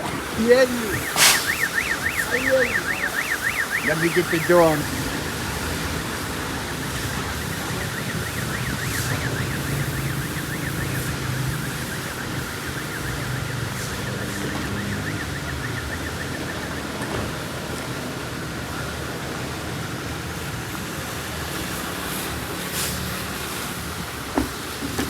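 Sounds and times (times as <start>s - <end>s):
electronic warbling alarm: 0.3s - 17.0s.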